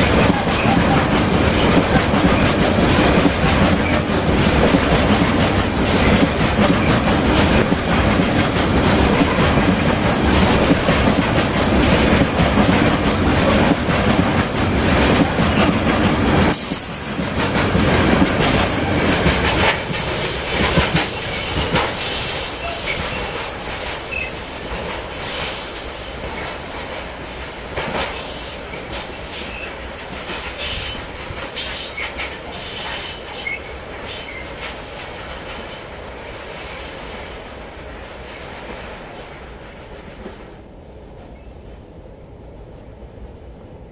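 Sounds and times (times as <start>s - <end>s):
wheels squealing on rails: 0.0s - 27.1s, 28.0s - 36.0s
freight train wheels clattering: 0.0s - 37.4s.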